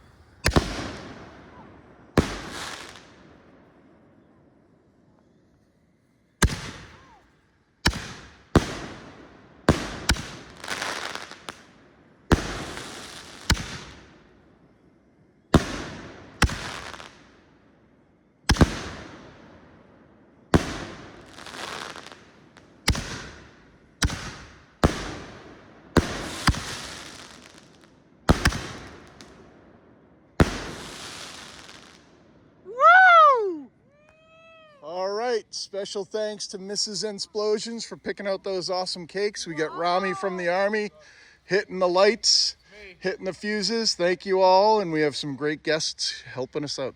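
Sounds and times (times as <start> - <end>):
firework booms: 0.0 - 3.8, 6.4 - 7.2, 7.8 - 11.6, 12.3 - 14.2, 15.5 - 17.4, 18.4 - 29.5, 30.4 - 32.1
meow-like cry: 32.7 - 34.8.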